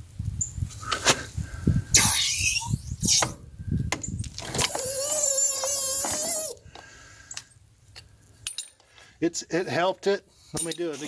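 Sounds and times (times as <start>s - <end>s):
steel squealing under load: 2.0s - 3.4s, 4.4s - 6.6s.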